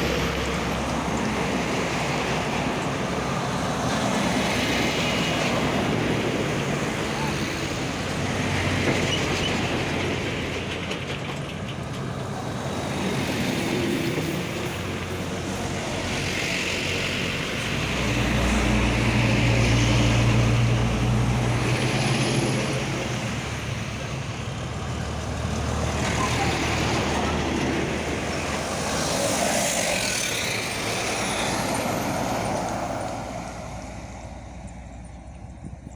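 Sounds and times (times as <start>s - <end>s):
truck diesel engine running: 0.0s - 35.9s
rushing noise: 12.4s - 34.6s.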